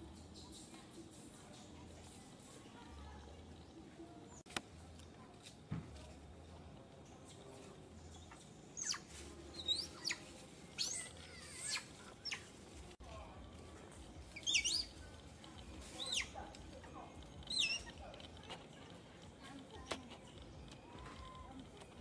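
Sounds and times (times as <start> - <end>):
small birds chirping: 0.0 - 5.3, 6.6 - 22.0.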